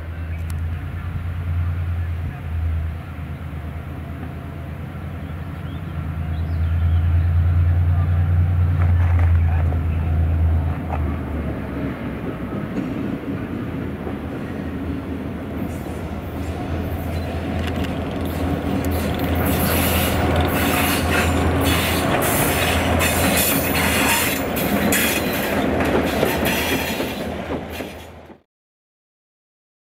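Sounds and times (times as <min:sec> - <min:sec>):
diesel locomotive humming: 0:00.0 - 0:28.4
wheels squealing on rails: 0:15.6 - 0:28.2.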